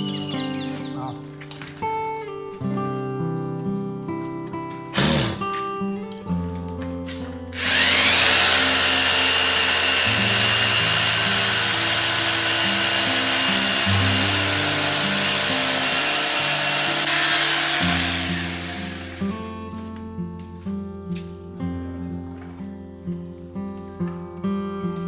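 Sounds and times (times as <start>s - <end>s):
power tool whining: 0.0s - 1.0s, 4.9s - 6.2s, 7.5s - 19.9s
strummed guitar music: 0.0s - 25.0s.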